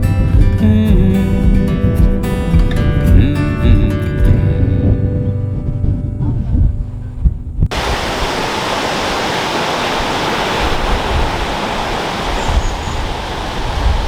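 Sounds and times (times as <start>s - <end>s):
music: 0.0s - 7.7s
fast-flowing water rushing: 7.7s - 14.0s.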